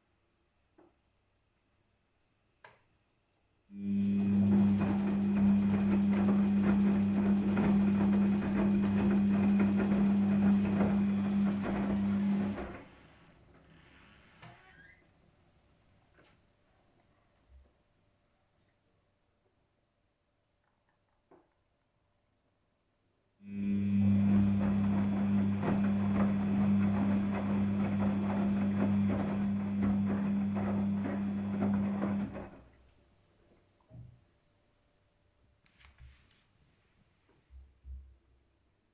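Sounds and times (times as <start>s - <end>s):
washing machine humming: 3.8s - 13.2s, 23.4s - 32.8s
washing machine ticking and rattling: 4.2s - 12.7s, 24.1s - 32.5s.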